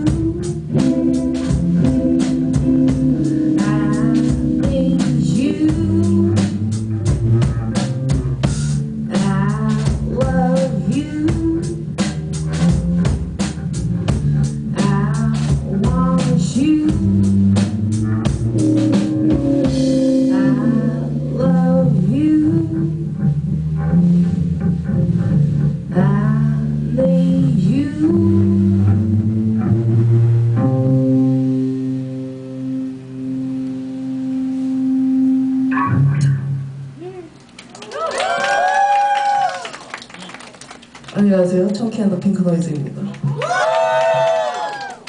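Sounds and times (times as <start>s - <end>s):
electric guitar: 0.0s - 9.2s, 11.5s - 37.7s
drum kit: 0.0s - 26.2s
bass guitar: 0.0s - 45.0s
person singing: 3.2s - 6.5s.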